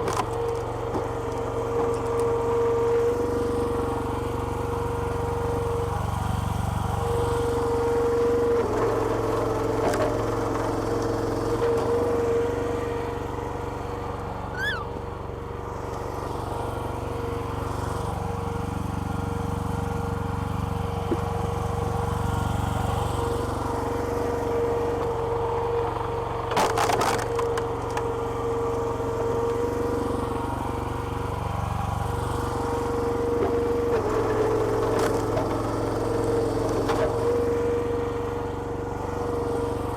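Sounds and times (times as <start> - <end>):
small petrol engine running: 0.0 - 39.9
hydraulic whine: 14.3 - 15.2.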